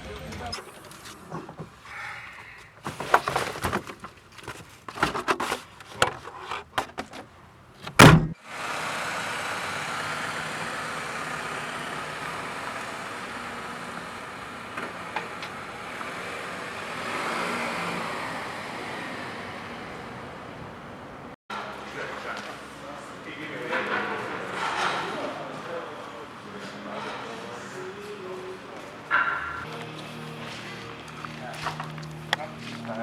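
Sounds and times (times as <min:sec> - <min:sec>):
loud thump: 0:08.0 - 0:08.4
sharp knocks and thuds: 0:08.0 - 0:08.4.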